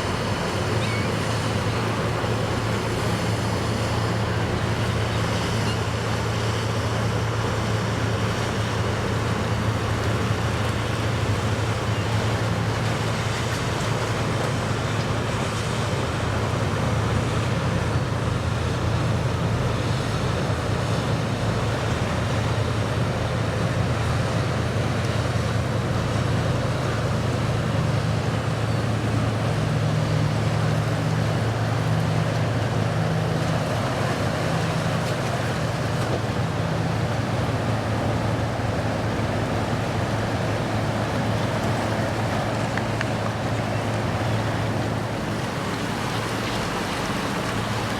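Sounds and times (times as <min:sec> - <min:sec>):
boat engines droning: 0:00.0 - 0:47.9
wind: 0:00.0 - 0:47.9.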